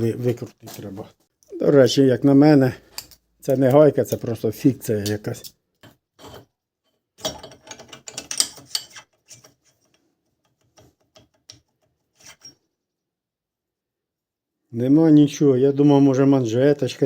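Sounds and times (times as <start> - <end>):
metal clicking and rattling: 7.2 - 9.2.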